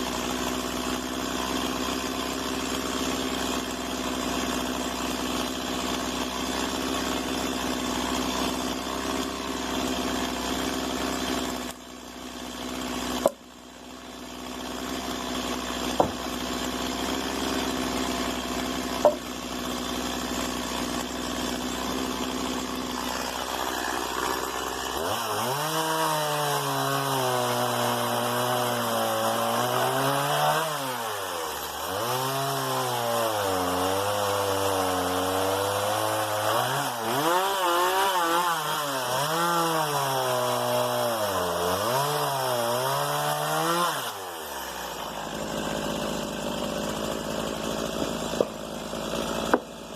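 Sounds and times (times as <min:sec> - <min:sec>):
chainsaw running: 0:00.0 - 0:49.9
sharp knocks: 0:16.0 - 0:16.2, 0:19.0 - 0:19.3.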